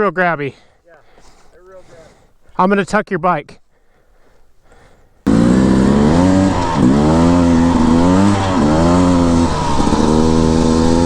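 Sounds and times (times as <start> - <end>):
dirt bike engine accelerating: 5.3 - 11.0.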